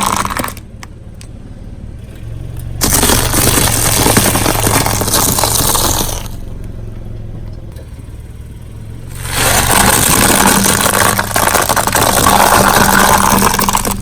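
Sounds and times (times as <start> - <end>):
tyre grinding over crushed objects: 0.0 - 0.6, 2.8 - 6.4, 9.1 - 14.0
car engine running: 0.0 - 14.0.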